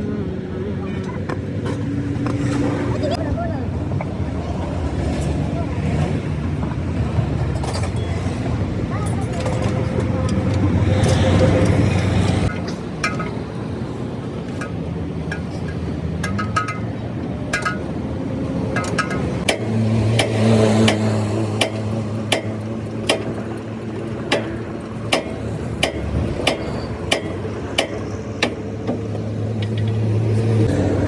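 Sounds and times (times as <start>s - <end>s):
hammer striking steel: 17.5s - 17.9s, 18.7s - 23.6s, 24.2s - 29.0s.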